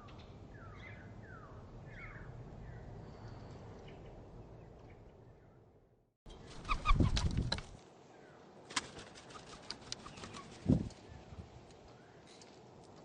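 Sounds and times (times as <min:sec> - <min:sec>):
birds wings flapping: 0:06.4 - 0:07.8, 0:08.6 - 0:11.0.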